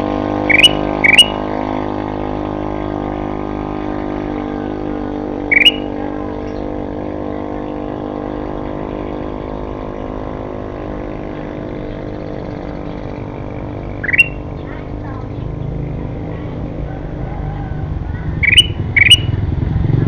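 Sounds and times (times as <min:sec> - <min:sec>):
steady low hum: 0:00.0 - 0:20.0
bird chirp: 0:00.4 - 0:01.5, 0:05.4 - 0:06.9, 0:11.2 - 0:15.8, 0:18.1 - 0:19.4.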